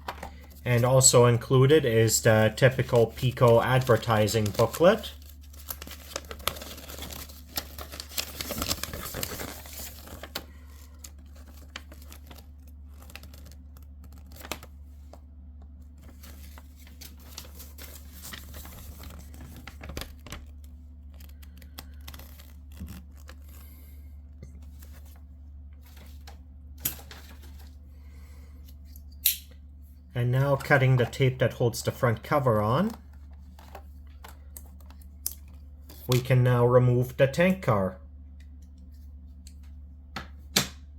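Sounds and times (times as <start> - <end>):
low electrical hum: 0.0 - 40.9
packaging rustling and crinkling: 2.3 - 15.2, 16.0 - 23.7, 24.6 - 27.8.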